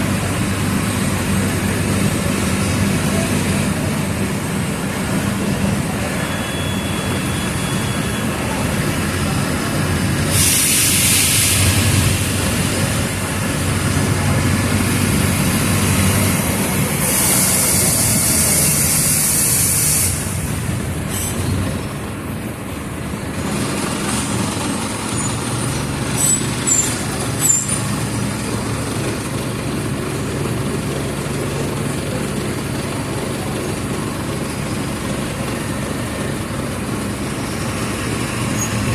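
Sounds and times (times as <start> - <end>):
diesel bus engine running: 0.0 - 38.9
air brake hiss: 10.2 - 12.3, 17.0 - 20.5.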